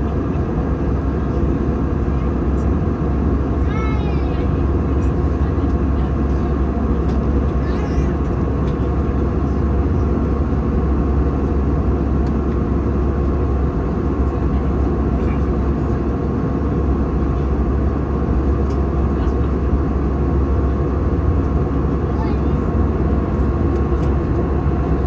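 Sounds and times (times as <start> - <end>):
airliner cabin rumble: 0.0 - 25.0.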